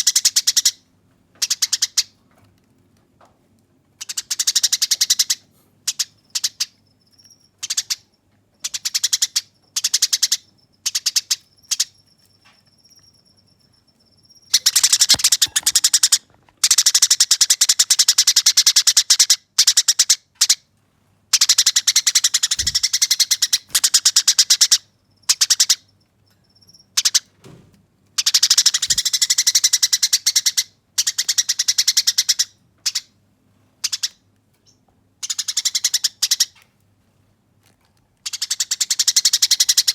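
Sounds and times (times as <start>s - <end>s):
sparrows chattering: 4.0s - 16.2s, 21.4s - 25.9s, 28.2s - 33.0s.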